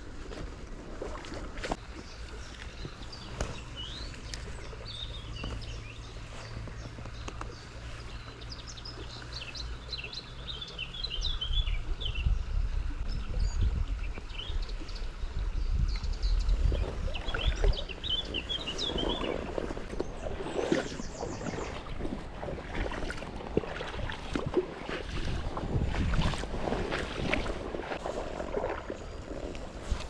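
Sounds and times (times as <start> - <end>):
small birds chirping: 2.0 - 23.1.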